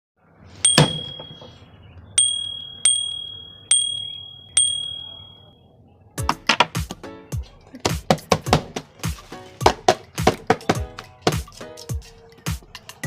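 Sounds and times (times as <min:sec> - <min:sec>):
small bell ringing: 0:00.6 - 0:01.6, 0:02.2 - 0:05.6
sharp knocks: 0:00.7 - 0:01.5.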